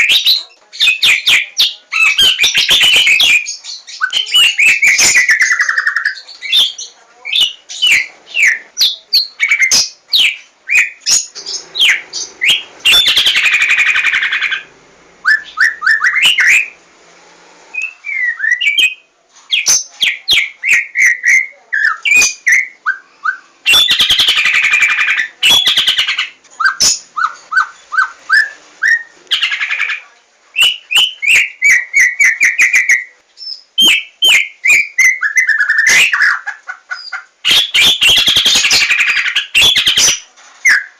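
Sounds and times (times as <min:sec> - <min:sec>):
bird harsh chattering: 0:00.0 - 0:14.7, 0:19.5 - 0:33.0, 0:33.8 - 0:40.2
bird singing whistles and clicks: 0:30.6 - 0:36.2.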